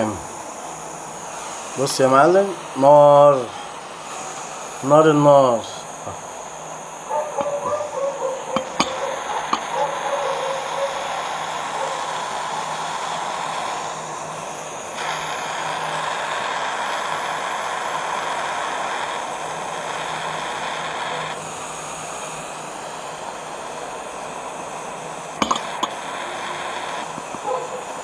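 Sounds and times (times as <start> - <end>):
gas torch flame hissing: 0.0 - 28.0.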